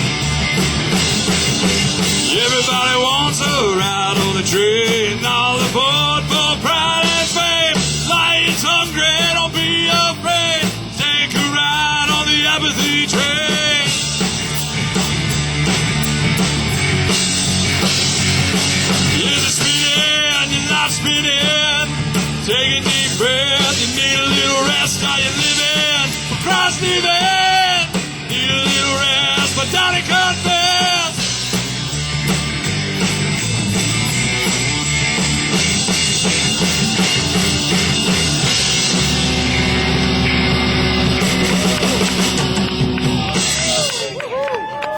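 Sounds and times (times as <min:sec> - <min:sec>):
rock band playing: 0:00.0 - 0:44.9
wavering high guitar lead: 0:23.1 - 0:44.6.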